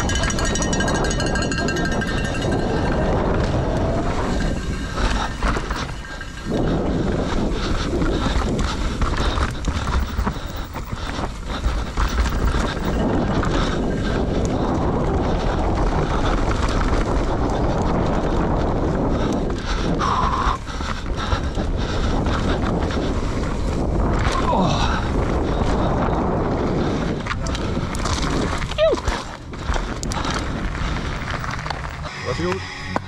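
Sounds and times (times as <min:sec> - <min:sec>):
wind noise on microphone: 0:00.0 - 0:33.0.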